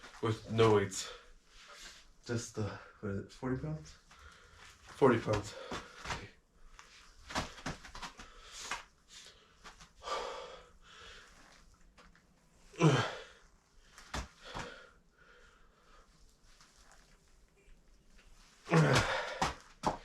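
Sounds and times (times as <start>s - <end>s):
man breathing hard: 5.4s - 6.3s, 8.1s - 11.4s, 14.3s - 16.1s, 18.7s - 20.0s
man grunting: 12.8s - 13.3s, 18.7s - 19.4s.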